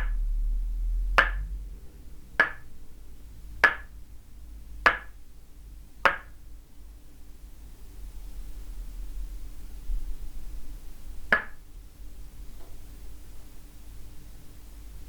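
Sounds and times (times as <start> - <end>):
wooden mallet knocking on peg: 1.2 - 1.5, 2.4 - 2.7, 3.6 - 3.9, 4.9 - 5.2, 6.1 - 6.4, 11.3 - 11.6.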